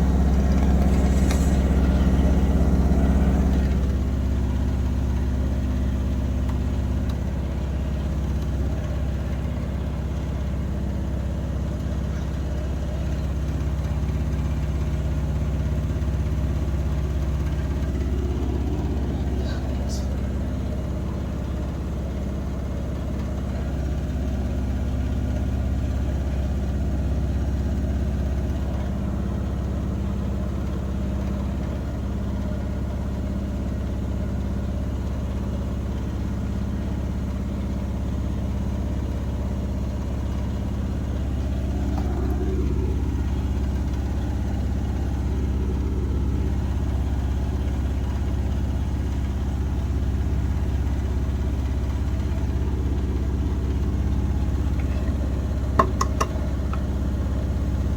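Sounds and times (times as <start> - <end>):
washing machine spinning: 0.0 - 57.9.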